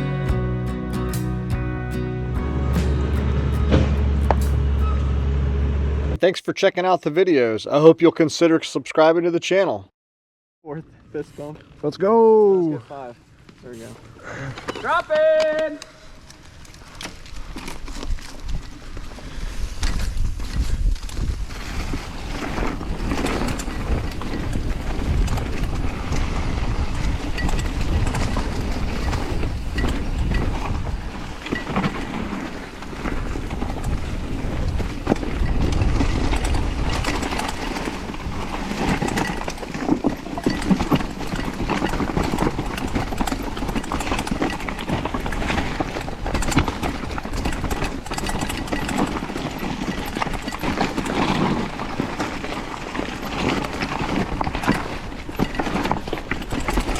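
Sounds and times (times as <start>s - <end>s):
tyres rolling over dirt and rocks: 12.9s - 56.9s
bike rattling over bumps: 13.2s - 56.9s.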